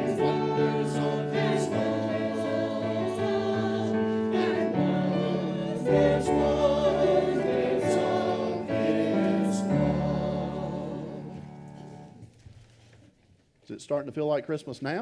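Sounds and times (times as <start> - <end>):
choir singing held chords: 0.0 - 12.1.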